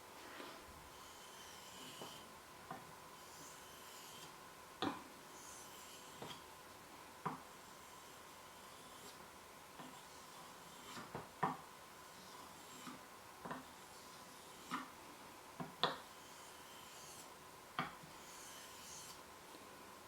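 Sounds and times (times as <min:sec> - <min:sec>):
knife scraping on whetstone: 0:00.3 - 0:02.3, 0:03.2 - 0:04.4, 0:05.4 - 0:06.4, 0:09.8 - 0:11.2, 0:12.1 - 0:14.9, 0:16.0 - 0:17.3, 0:18.0 - 0:19.2.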